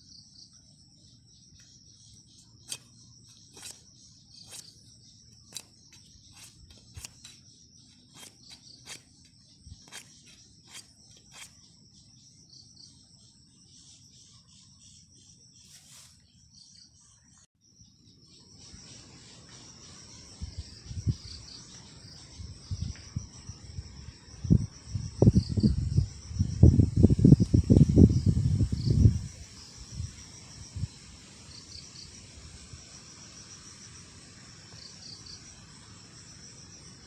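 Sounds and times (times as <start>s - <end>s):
crickets chirring: 0.0s - 37.0s.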